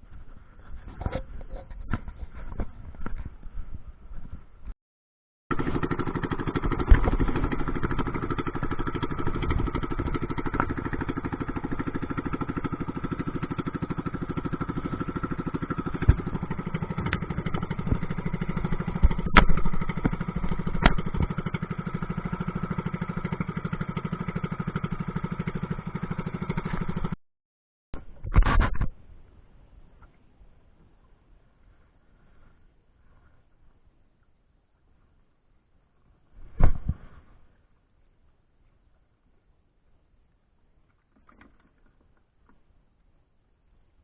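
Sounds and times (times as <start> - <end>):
boat engine running: 5.5 - 27.2.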